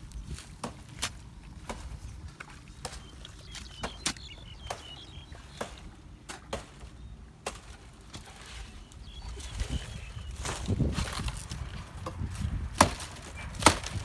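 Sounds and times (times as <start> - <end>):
faint bird chirps: 2.0 - 5.9, 8.4 - 10.7
low wind rumble on microphone: 8.4 - 14.0.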